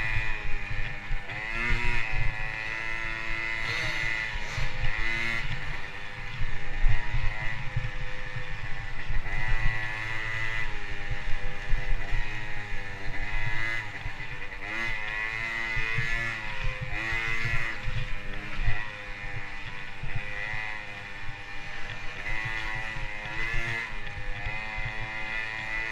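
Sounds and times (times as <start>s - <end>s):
motocross bike engine revving: 0.0s - 25.9s.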